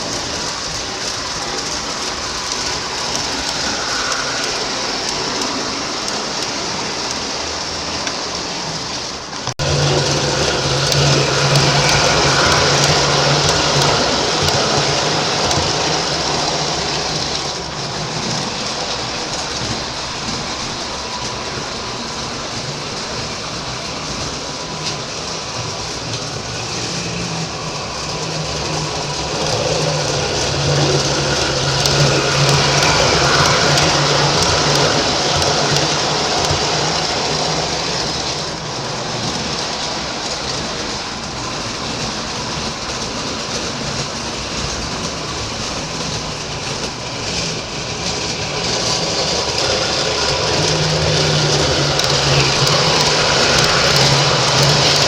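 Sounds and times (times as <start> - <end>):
model train wheels clattering: 0.0 - 55.0
electric motor hum: 9.6 - 23.2, 23.9 - 37.4.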